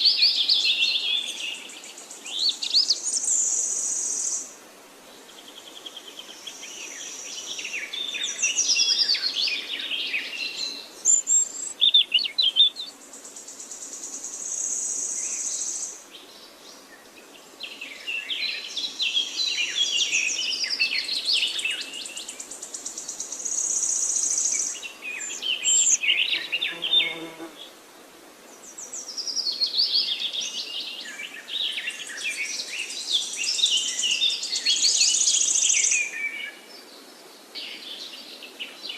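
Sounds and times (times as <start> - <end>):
birds chirping and trilling: 23.8 - 27.5.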